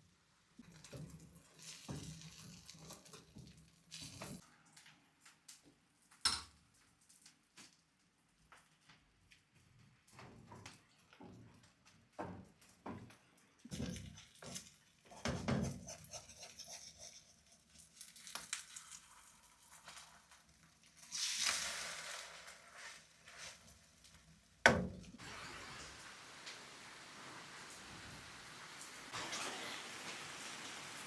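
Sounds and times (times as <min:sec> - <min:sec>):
rain hissing: 0:25.2 - 0:31.0
brief hissing rush: 0:29.1 - 0:31.0.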